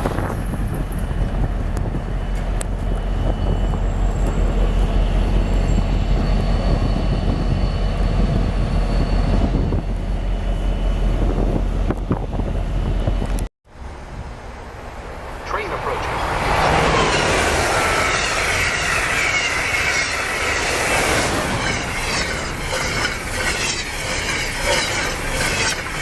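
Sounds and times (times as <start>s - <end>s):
train wheels rumbling on rail: 0.0s - 26.0s
high-pitched whines: 15.4s - 26.0s.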